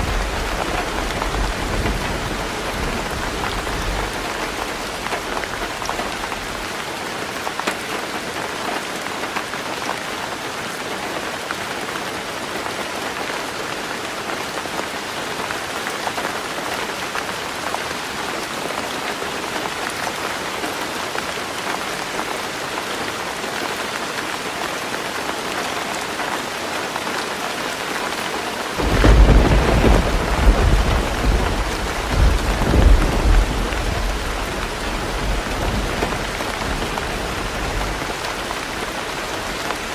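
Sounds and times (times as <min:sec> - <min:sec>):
thunder rumbling: 0:00.0 - 0:06.6, 0:28.8 - 0:39.9
heavy rain on a roof: 0:00.0 - 0:39.9.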